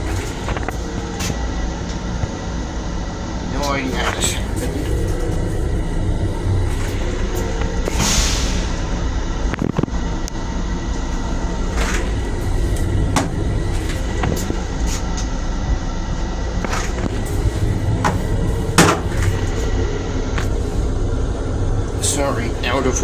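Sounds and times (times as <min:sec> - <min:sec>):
low rumble inside railcar: 0:00.0 - 0:23.0
sharp clicks and knocks: 0:17.9 - 0:19.6.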